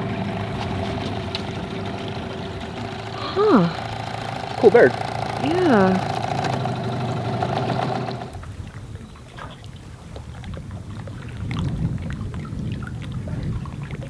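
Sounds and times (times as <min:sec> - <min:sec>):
steady motor hum: 0:00.0 - 0:08.5
water lapping against boat hull: 0:00.0 - 0:14.0.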